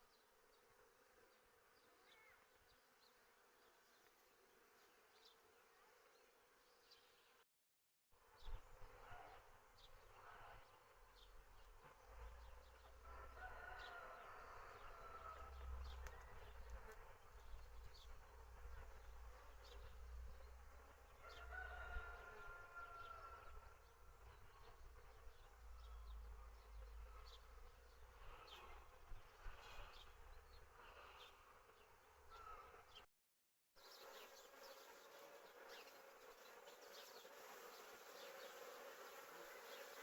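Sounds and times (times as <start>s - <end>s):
bees buzzing faintly: 0.0s - 7.4s, 8.3s - 33.1s, 33.8s - 40.0s
rooster crowing: 13.0s - 15.7s, 21.2s - 23.6s.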